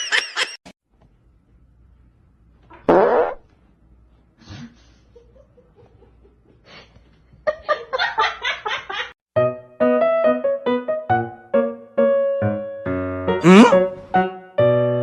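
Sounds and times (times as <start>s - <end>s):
person crying out: 13.4s - 13.8s
person laughing: 13.4s - 13.8s.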